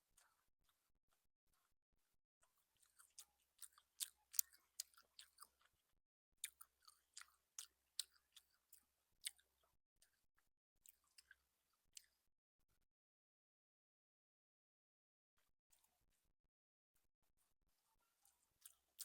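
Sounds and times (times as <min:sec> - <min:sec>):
chewing crisp fried food: 0:02.5 - 0:12.3, 0:18.2 - 0:19.0.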